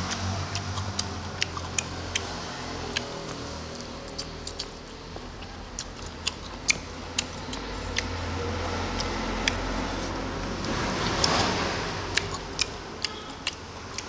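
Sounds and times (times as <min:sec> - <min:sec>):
man chewing food: 0:00.0 - 0:14.0
steady low hum: 0:00.0 - 0:14.0
wet mouth clicks and lip smacks: 0:00.1 - 0:02.3, 0:02.9 - 0:04.8, 0:05.8 - 0:08.2, 0:12.1 - 0:14.0.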